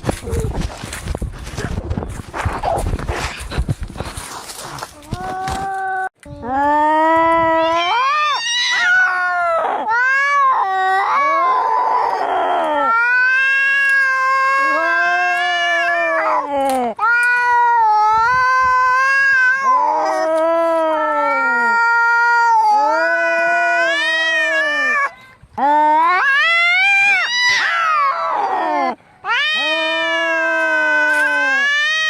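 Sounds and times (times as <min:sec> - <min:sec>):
cats yowling: 0:07.5 - 0:25.1, 0:25.7 - 0:32.0.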